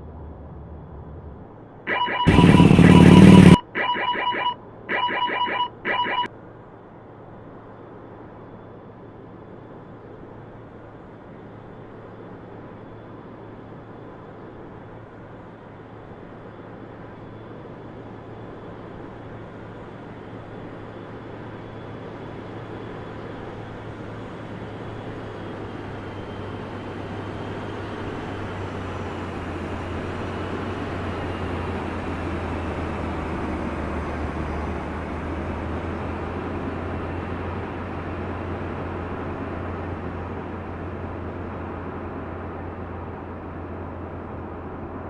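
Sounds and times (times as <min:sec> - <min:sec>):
aircraft engine rushing: 0:00.2 - 0:06.3.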